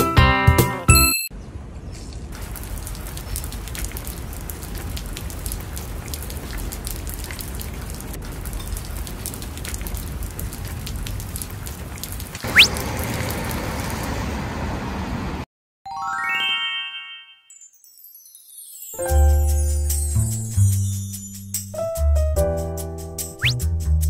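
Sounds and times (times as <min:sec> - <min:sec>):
raindrop ticks: 0:02.3 - 0:14.1
rain hiss: 0:02.4 - 0:14.4, 0:19.1 - 0:21.7.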